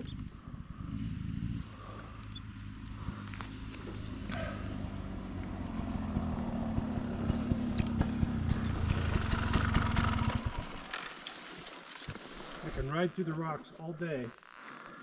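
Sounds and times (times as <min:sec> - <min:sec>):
dirt bike engine running: 0:00.0 - 0:11.3.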